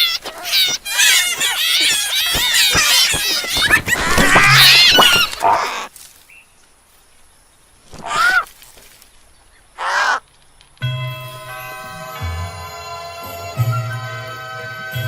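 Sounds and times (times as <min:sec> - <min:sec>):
wavering high animal calls: 0:00.0 - 0:05.9, 0:08.0 - 0:08.5, 0:09.8 - 0:10.2.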